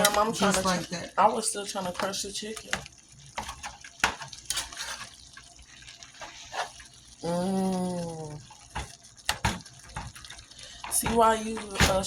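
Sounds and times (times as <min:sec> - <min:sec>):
utensils scraping a pot: 0:00.0 - 0:01.0, 0:03.4 - 0:05.2, 0:06.2 - 0:06.9.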